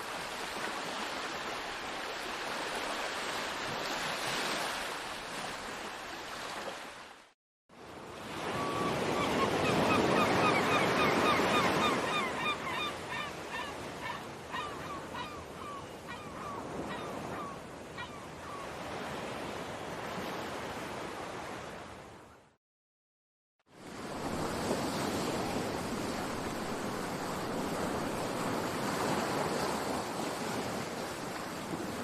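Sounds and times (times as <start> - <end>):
wind: 0.0 - 22.6, 23.7 - 32.0
seagulls calling: 8.3 - 18.8.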